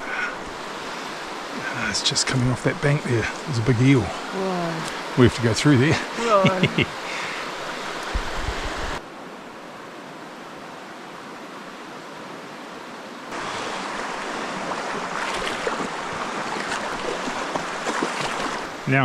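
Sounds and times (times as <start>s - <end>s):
river rushing over stones: 0.0s - 9.7s, 13.3s - 19.0s
water splashes: 13.3s - 18.9s.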